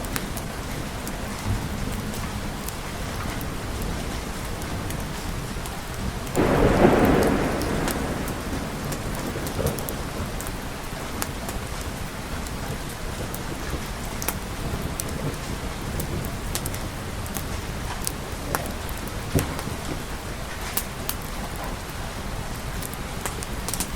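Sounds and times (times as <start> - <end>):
steady rain: 0.0 - 23.9
thunder clap rumbling: 6.3 - 13.8.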